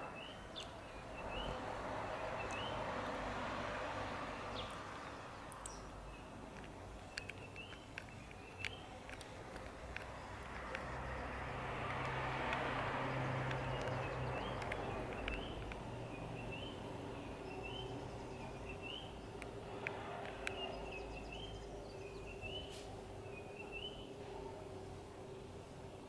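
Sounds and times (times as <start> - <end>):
sharp clicks: 6.4 - 17.0, 18.7 - 21.5
bird rising chirp: 10.2 - 19.4.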